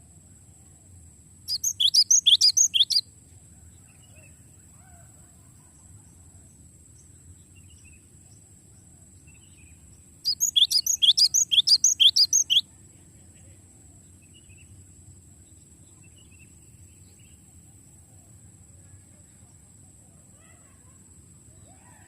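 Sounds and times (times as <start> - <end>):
faint bird chirps: 1.4 - 22.0
bird singing rolling phrase: 1.5 - 3.0, 9.2 - 12.6.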